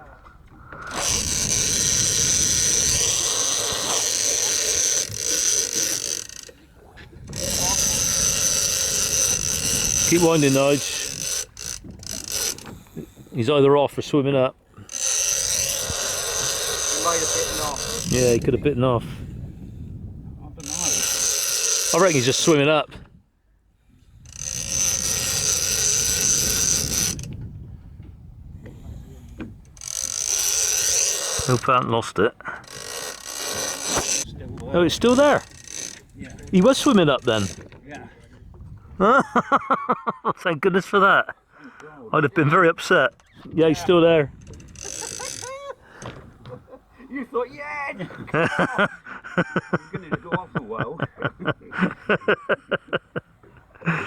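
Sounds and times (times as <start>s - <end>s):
fishing reel ratchet buzzing: 0.5s - 13.5s, 14.7s - 18.6s, 20.6s - 22.7s, 24.2s - 27.4s, 28.6s - 38.4s, 44.3s - 46.2s.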